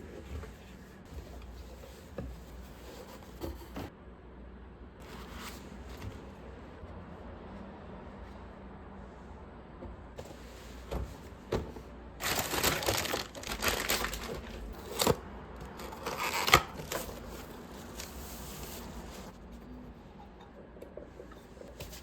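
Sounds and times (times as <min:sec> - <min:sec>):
packaging crinkling: 0:12.2 - 0:18.2.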